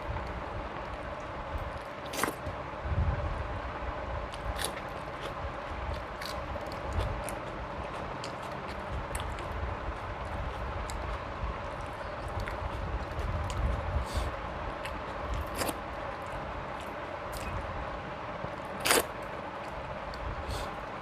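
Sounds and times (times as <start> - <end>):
person chewing: 1.8 - 2.4, 4.3 - 17.6, 18.8 - 20.8.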